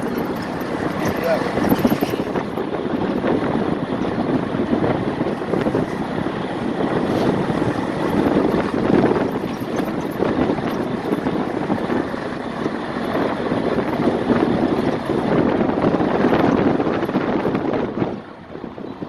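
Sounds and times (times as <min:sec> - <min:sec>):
busy fish market ambience: 0:00.0 - 0:04.4
wind buffeting microphone: 0:00.0 - 0:19.0.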